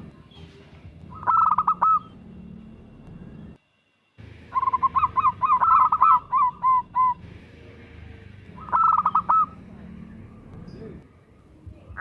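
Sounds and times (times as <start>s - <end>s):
dove cooing: 1.1s - 2.1s, 4.6s - 7.2s, 8.6s - 9.6s.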